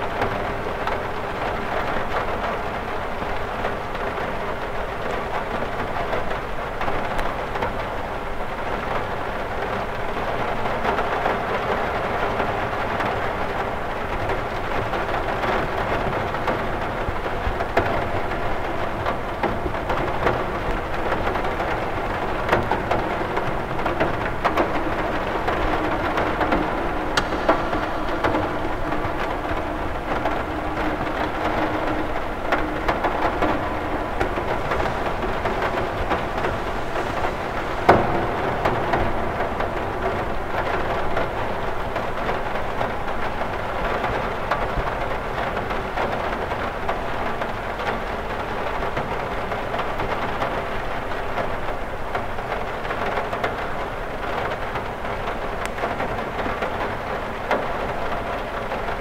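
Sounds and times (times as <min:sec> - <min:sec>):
rain on a window: 0:00.0 - 0:59.0
sharp tap: 0:27.2 - 0:31.2.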